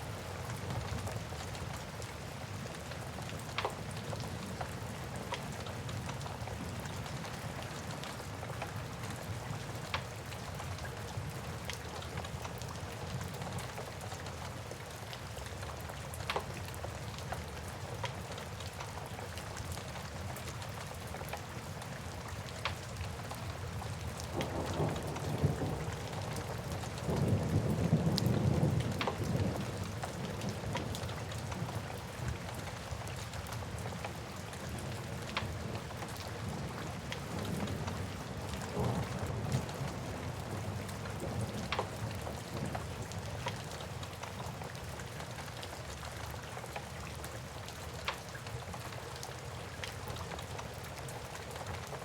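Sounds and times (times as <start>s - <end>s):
steady rain: 0.0s - 52.0s
low rumble of thunder: 24.2s - 31.6s, 36.4s - 43.4s.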